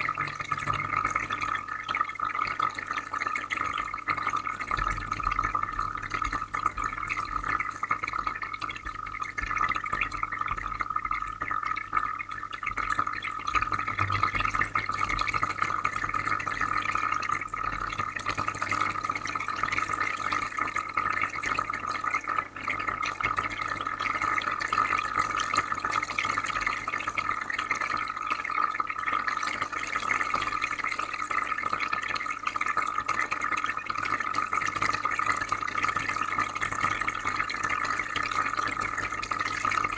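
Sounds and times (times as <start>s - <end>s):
low electrical hum: 0.0s - 19.9s
water bubbling and trickling: 0.0s - 39.9s.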